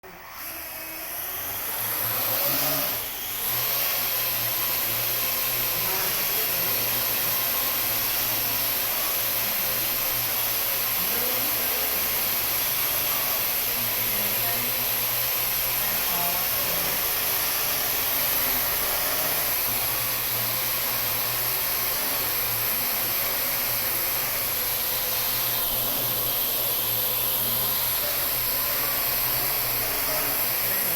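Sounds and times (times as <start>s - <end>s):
drone rotors whirring: 0.0s - 30.9s.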